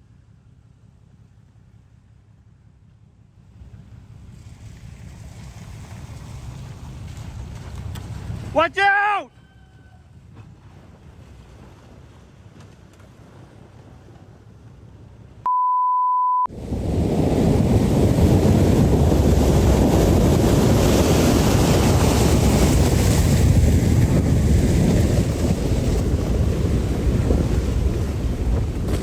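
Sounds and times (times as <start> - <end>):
wind buffeting microphone: 3.6 - 8.6, 16.5 - 29.0
crashing waves and surf: 4.3 - 9.3, 16.5 - 29.0
steady beep: 15.5 - 16.5.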